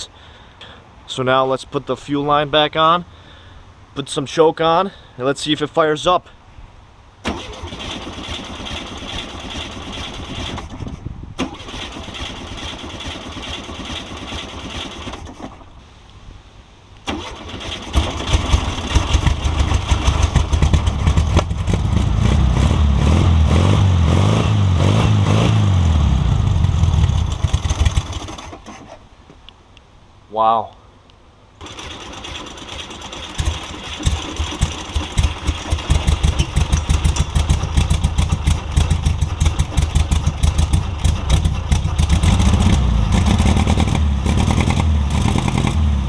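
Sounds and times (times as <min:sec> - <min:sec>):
starter cranking: 0:27.0 - 0:29.0, 0:31.6 - 0:45.8.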